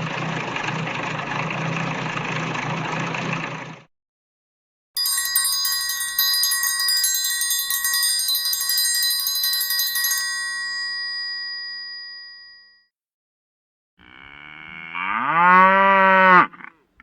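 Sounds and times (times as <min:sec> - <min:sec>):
triangle bell rolling: 0:05.0 - 0:12.8.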